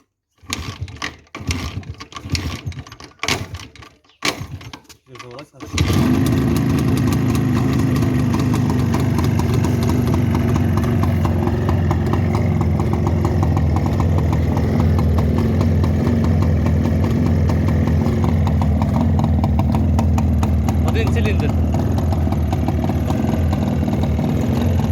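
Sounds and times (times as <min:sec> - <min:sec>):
motorcycle engine idling: 0:05.8 - 0:24.9.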